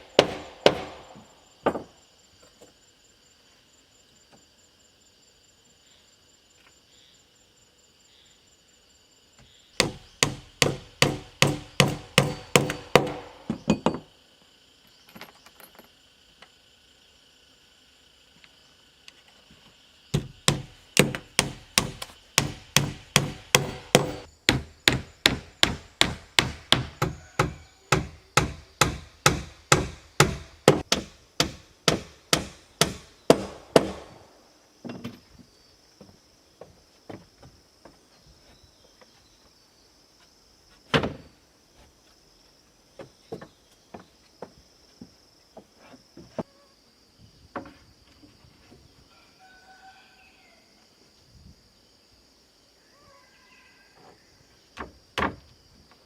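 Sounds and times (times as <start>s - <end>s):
insects buzzing: 0.0s - 56.0s
hand tool striking wood: 0.1s - 1.9s, 9.8s - 14.1s, 20.1s - 34.2s
knocks on wood: 1.6s - 2.0s, 9.8s - 14.1s, 20.1s - 34.2s, 54.8s - 55.5s.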